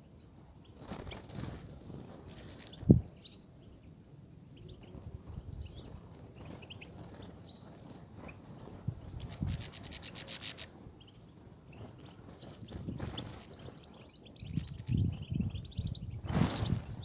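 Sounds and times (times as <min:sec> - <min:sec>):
finches chirping: 0:09.9 - 0:17.0.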